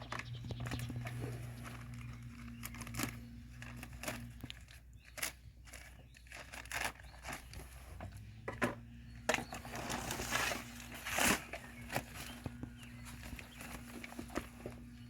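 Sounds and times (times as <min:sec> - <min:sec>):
sand rustling and scraping: 0:09.4 - 0:15.0.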